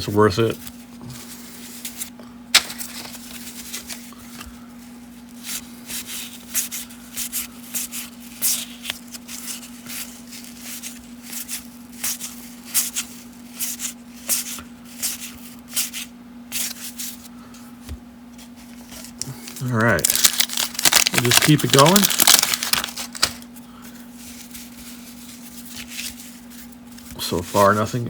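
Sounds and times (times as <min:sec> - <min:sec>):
low electrical hum: 0:00.0 - 0:28.0
cards flicked off a stack: 0:02.5 - 0:03.1.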